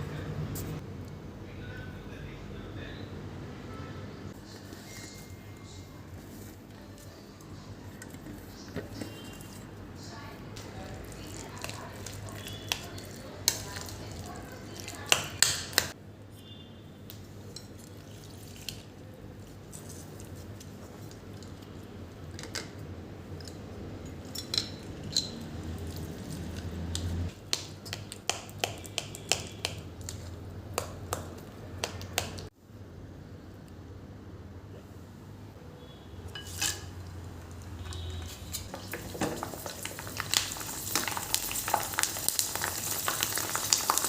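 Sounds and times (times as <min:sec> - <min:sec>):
dishes and utensils clinking: 0:24.1 - 0:26.5, 0:36.3 - 0:37.1.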